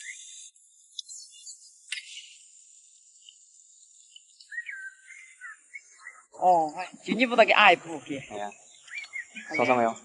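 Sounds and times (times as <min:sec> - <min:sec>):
insects chirping: 0:00.0 - 0:10.0.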